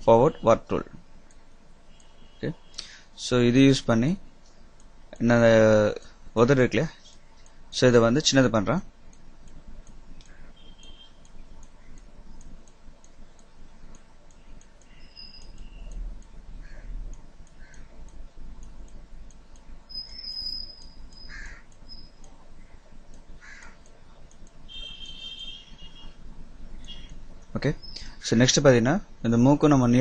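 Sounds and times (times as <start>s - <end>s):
light regular ticking: 0.0s - 30.0s
faint bird calls: 16.6s - 17.0s, 17.6s - 18.0s, 20.0s - 22.8s, 23.4s - 23.9s.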